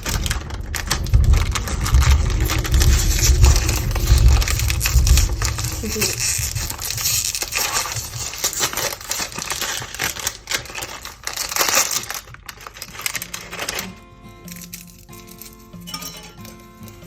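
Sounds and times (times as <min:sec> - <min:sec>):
background music: 0:11.8 - 0:17.0.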